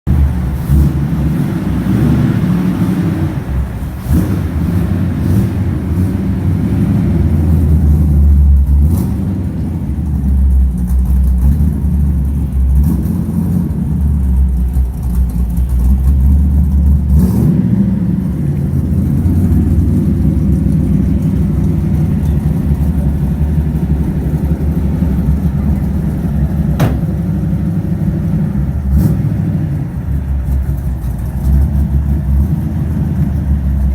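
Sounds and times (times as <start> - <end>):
truck engine low rumble: 0.0 - 33.9
sharp clicks or knocks: 26.8 - 27.5.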